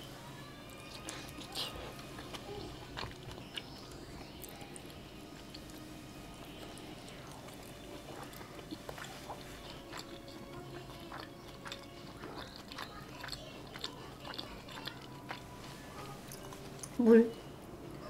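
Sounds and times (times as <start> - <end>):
wet chewing clicks and smacks: 0.9 - 5.8, 6.4 - 15.5.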